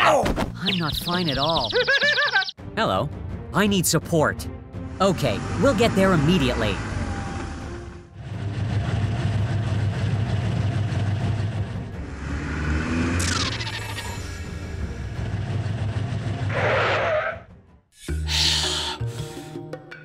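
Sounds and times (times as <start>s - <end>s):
car engine sound effect: 5.1s - 17.4s.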